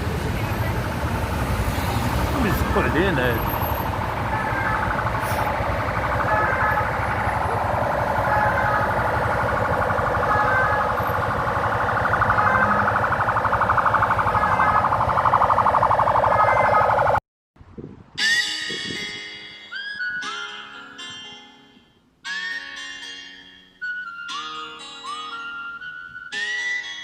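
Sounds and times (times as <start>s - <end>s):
huge flock of birds calling: 2.4s - 16.6s.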